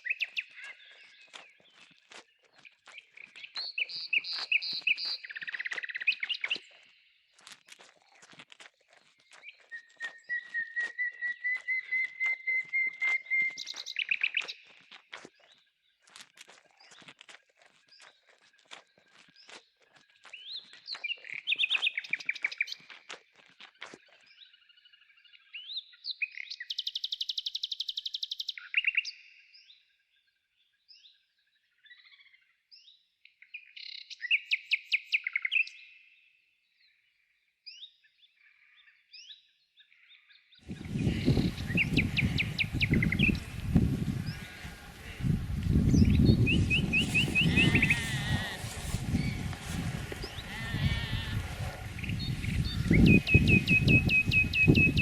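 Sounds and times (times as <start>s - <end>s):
songbirds singing: 0.0s - 23.1s, 37.7s - 55.0s
loud rough noise: 40.9s - 55.0s.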